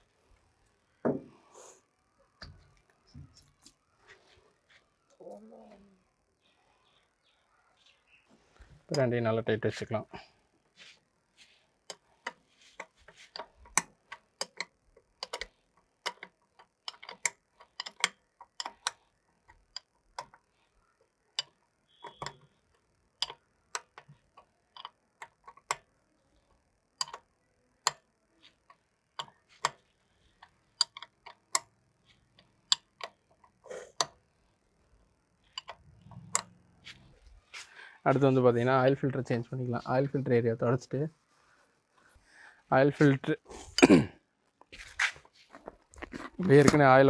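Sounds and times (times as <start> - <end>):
tools clicking and tapping: 11.8 - 20.5, 21.3 - 25.9, 27.0 - 34.2, 35.4 - 37.0.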